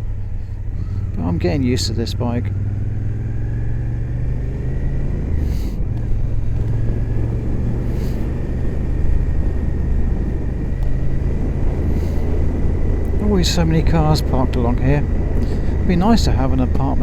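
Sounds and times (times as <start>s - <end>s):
motorcycle engine cruising: 0.0s - 17.0s
road noise: 0.0s - 17.0s
wind noise: 4.8s - 17.0s.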